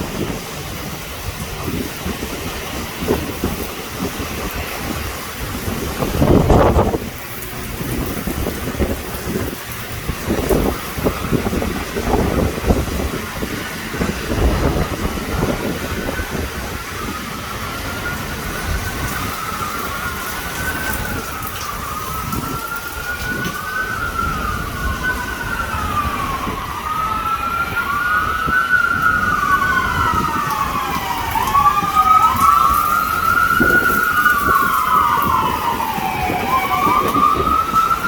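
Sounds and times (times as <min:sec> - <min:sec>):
heavy rain hissing: 0:00.0 - 0:38.0
sirens wailing: 0:00.0 - 0:38.0.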